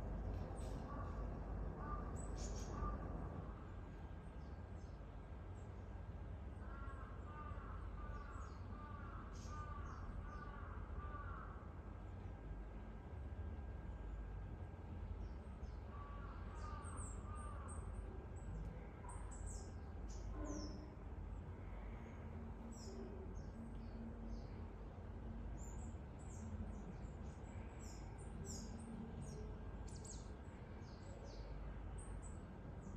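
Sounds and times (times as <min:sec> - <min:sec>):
low background rumble: 0:00.0 - 0:32.9
small birds chirping: 0:00.4 - 0:03.1.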